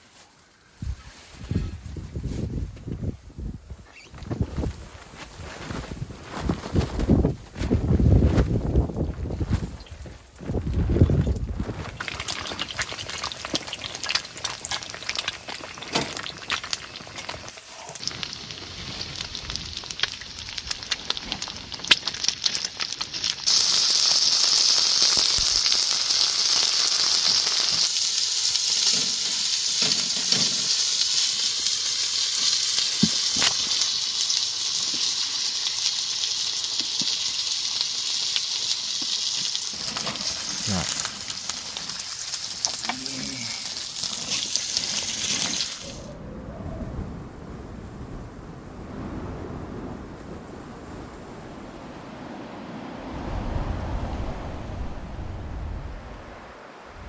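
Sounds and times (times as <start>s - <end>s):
food frying in a pan: 11.9s - 46.0s.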